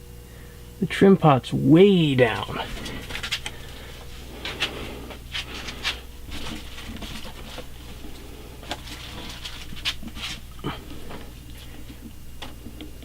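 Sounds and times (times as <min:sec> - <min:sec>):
ceiling fan motor hum: 0:00.0 - 0:13.0
breathy rustling: 0:02.6 - 0:06.8, 0:07.9 - 0:12.0.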